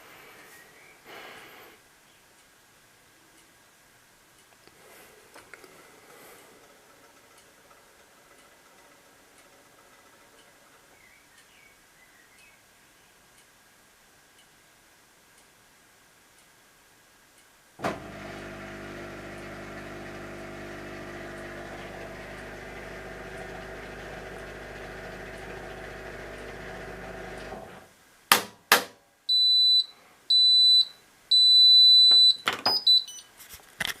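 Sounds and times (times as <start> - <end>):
washing machine hum: 5.7 - 10.9, 17.8 - 27.9
high electronic beeps: 29.3 - 33.3.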